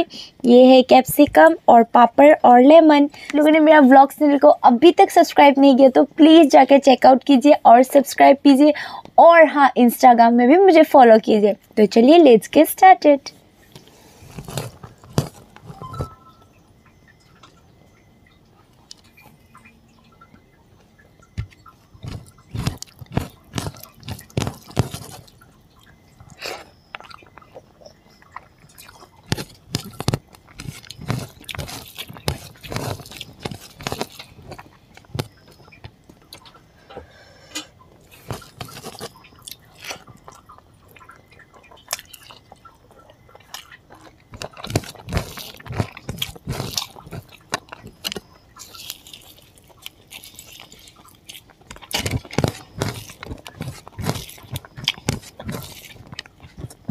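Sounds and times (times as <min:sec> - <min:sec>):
person chewing with lip smacks: 0:18.8 - 0:19.4, 0:21.3 - 0:36.6, 0:37.6 - 0:56.9
fingers mixing rice on a plate: 0:21.4 - 0:25.4, 0:28.8 - 0:35.8, 0:38.0 - 0:40.1, 0:43.4 - 0:56.9.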